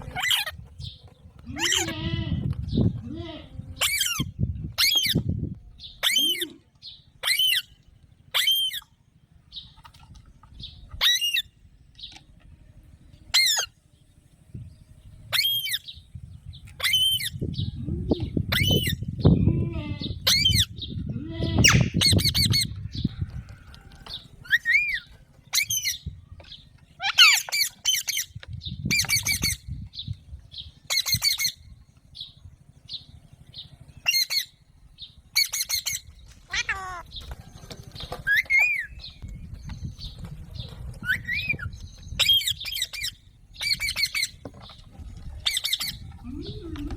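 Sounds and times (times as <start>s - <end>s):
parakeet squawking: 27.0s - 27.7s, 36.5s - 37.0s.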